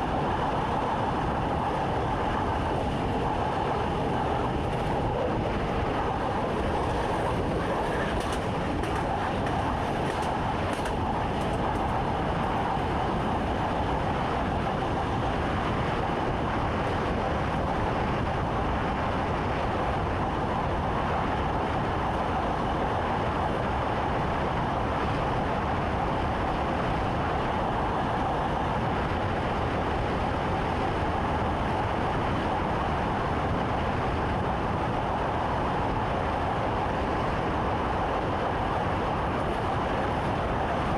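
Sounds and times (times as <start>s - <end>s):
mid-pitched hum: 0.0s - 17.3s
train wheels rumbling: 2.6s - 16.0s.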